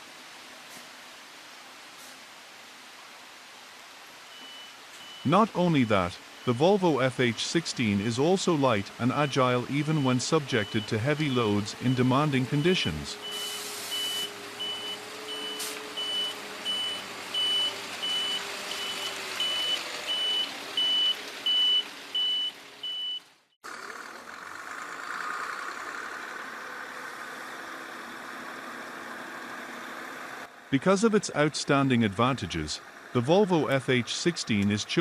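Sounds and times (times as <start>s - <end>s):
truck reversing alarm beeping: 4.3s - 23.3s
diesel truck engine running: 5.0s - 23.0s, 23.6s - 35.0s.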